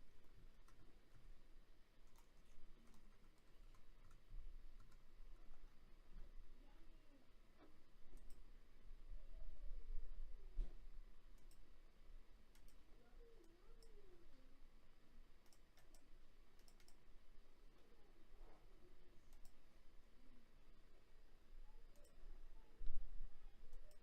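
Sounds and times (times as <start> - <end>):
low steady hum: 0.0 - 24.0
faint clicks: 0.5 - 1.3, 2.0 - 5.7, 7.5 - 8.5, 10.6 - 11.7, 12.5 - 14.4, 15.4 - 17.1, 17.8 - 19.7, 21.8 - 23.0, 23.6 - 24.0.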